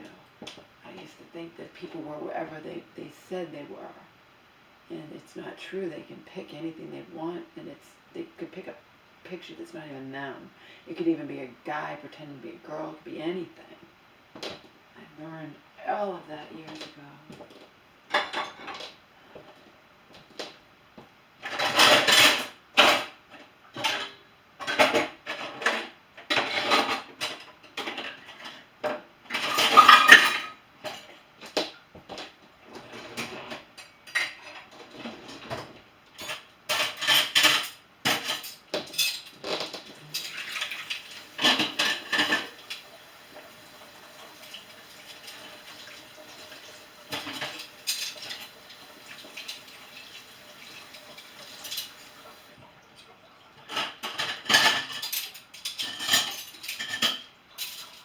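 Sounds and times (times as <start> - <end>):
dishes and cutlery clattering: 18.1 - 19.0, 21.4 - 23.2, 23.8 - 31.2, 32.8 - 42.8, 47.1 - 48.6, 50.8 - 52.2, 53.6 - 58.0.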